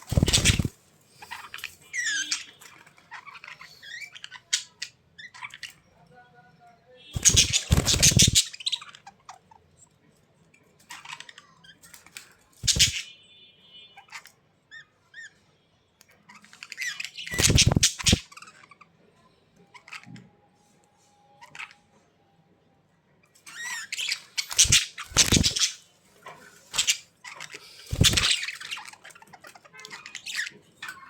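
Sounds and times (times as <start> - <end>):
bird harsh calls: 0.0 - 5.8, 7.2 - 9.2, 12.6 - 13.2, 16.3 - 18.6, 23.5 - 25.9, 26.6 - 31.0
bird chirps: 0.0 - 6.1, 7.2 - 9.1, 12.6 - 13.2, 16.3 - 18.6, 23.5 - 25.9, 26.6 - 31.0.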